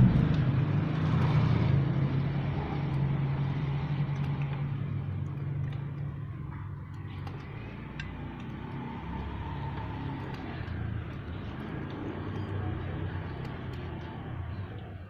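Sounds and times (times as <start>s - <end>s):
traffic engine hum: 0.0s - 15.0s.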